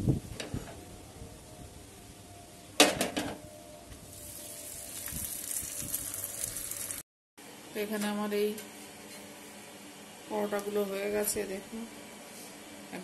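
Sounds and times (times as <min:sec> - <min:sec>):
dough crackling in oil: 0:04.1 - 0:07.0
flatbread sizzling in a pan: 0:04.1 - 0:07.0.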